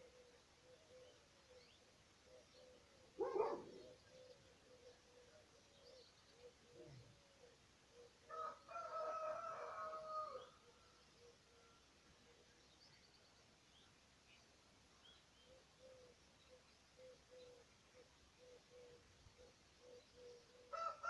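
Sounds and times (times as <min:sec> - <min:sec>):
faint small birds chirping: 0:00.0 - 0:21.0
rooster crowing: 0:08.3 - 0:10.5, 0:20.7 - 0:21.0.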